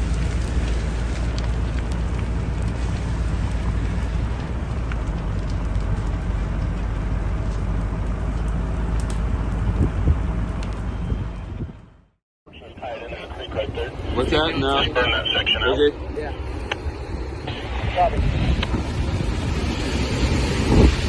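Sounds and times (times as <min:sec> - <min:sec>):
wind on microphone rumble: 0:00.0 - 0:12.0, 0:16.6 - 0:21.0
wildfire rushing and crackling: 0:00.0 - 0:21.0.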